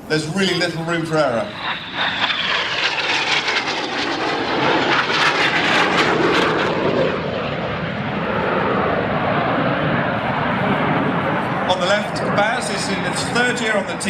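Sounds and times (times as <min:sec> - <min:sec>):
high whine falling in pitch: 0:00.0 - 0:08.0
jet roar: 0:00.0 - 0:14.0.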